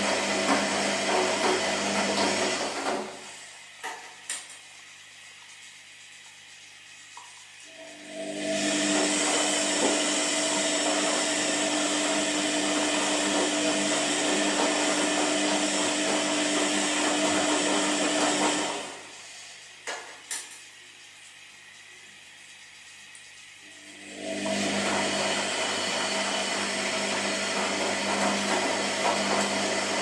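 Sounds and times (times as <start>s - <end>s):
washing machine motor whirring: 0.0s - 30.0s.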